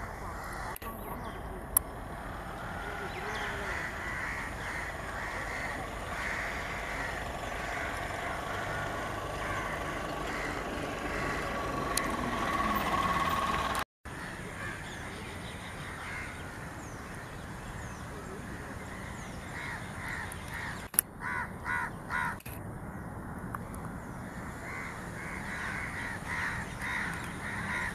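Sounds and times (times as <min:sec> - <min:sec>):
steady background hum: 0:00.0 - 0:13.7
birds cawing: 0:00.0 - 0:23.4, 0:24.0 - 0:27.9.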